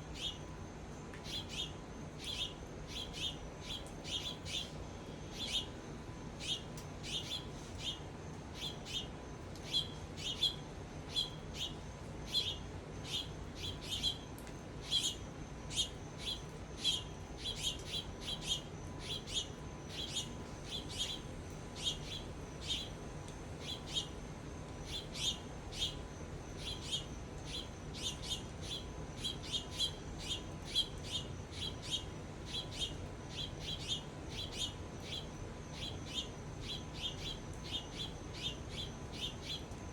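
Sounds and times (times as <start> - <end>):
bird chirping: 1.3 - 4.7, 14.8 - 22.9, 26.6 - 39.7.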